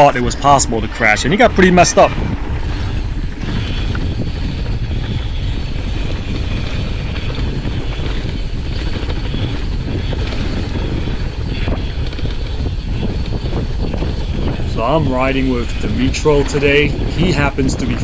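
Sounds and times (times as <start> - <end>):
bike rolling and rattling: 0.0 - 18.0
wind on microphone: 0.0 - 18.0.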